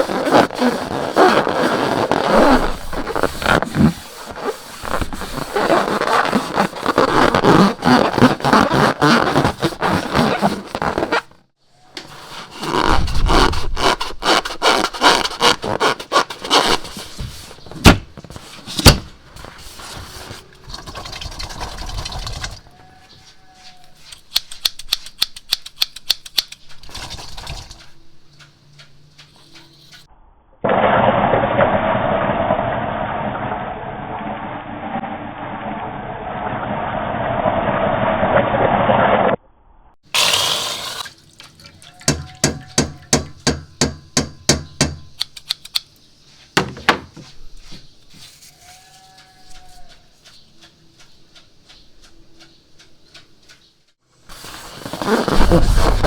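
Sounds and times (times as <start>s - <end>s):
slime scraping and crackling: 0.0s - 11.4s, 12.1s - 18.8s, 54.3s - 56.0s
sharp clicks: 24.2s - 26.7s, 45.2s - 46.0s.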